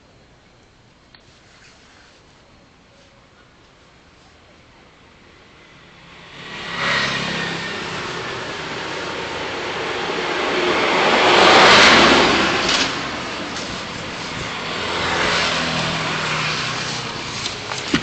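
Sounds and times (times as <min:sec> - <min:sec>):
tyre and road noise: 0:01.1 - 0:18.0
vehicle passing: 0:05.4 - 0:18.0.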